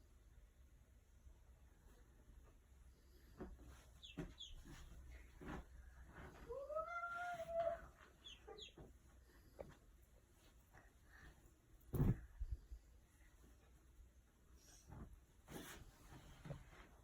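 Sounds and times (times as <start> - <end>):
duckling peeping: 4.0 - 4.6, 8.2 - 8.8.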